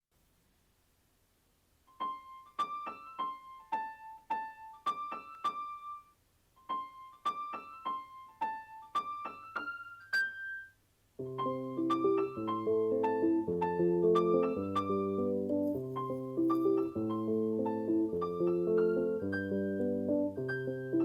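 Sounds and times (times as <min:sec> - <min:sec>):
keyboard playing high melody: 0:10.0 - 0:21.0.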